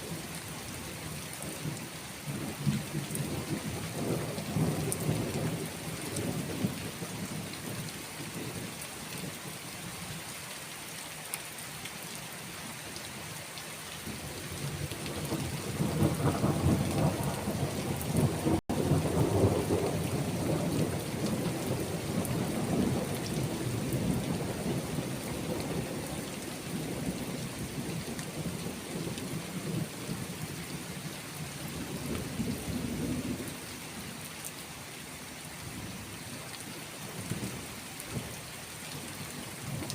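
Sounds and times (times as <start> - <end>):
steady rain: 0.0 - 39.9
thunder rumbling: 14.7 - 30.3.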